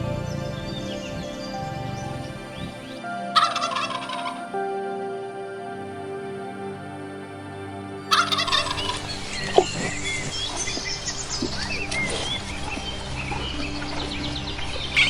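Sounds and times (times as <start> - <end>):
soft background music: 0.0 - 15.0
poultry calling: 3.4 - 4.5, 8.1 - 9.8.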